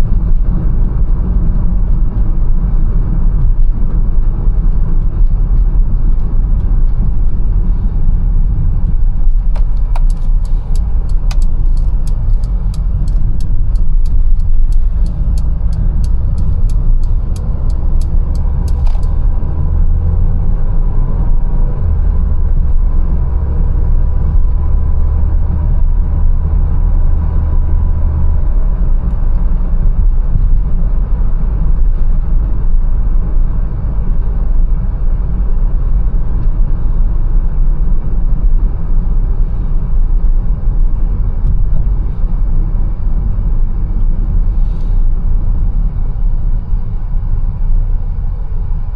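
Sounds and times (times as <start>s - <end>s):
car road and engine rumble: 0.0s - 48.9s
sharp ticking: 9.8s - 19.2s.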